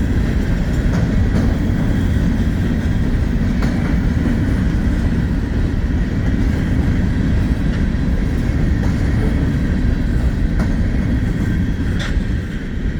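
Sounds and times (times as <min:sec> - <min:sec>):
freight train rumbling past: 0:00.0 - 0:12.9
wheels clicking over rail joints: 0:00.0 - 0:12.9.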